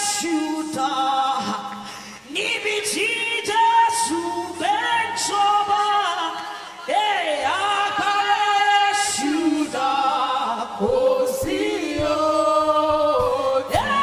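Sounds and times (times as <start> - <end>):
gospel worship singing: 0.0 - 14.0
music: 9.2 - 14.0.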